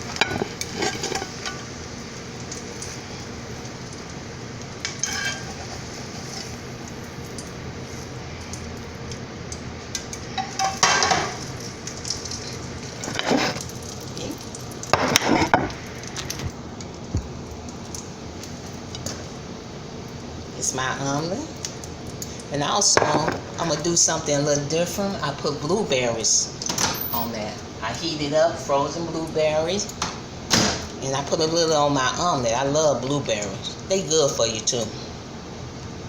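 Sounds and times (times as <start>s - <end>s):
omelet sizzling in a skillet: 0.0s - 36.0s
utensil clinking and scraping pan: 0.1s - 1.7s, 4.9s - 6.6s, 12.9s - 13.8s.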